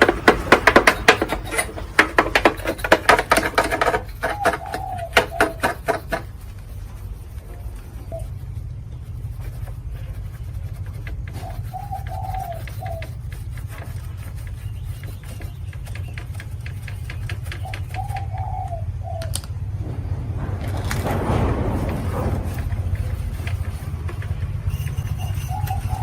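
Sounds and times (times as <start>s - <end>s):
steady low hum: 0.0s - 26.0s
dove cooing: 4.2s - 6.0s, 11.3s - 13.1s, 17.5s - 19.3s
loud rushing noise: 19.6s - 24.7s.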